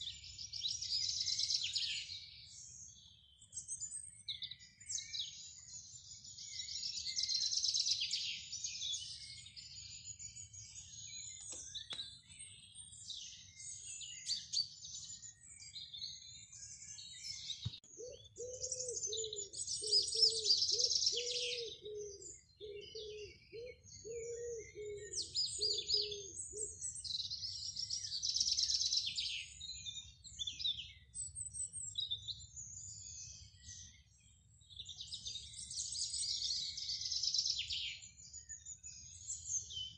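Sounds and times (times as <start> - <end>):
songbirds singing and chirping: 0.0 - 39.9
lower repeating bird call: 18.0 - 26.8.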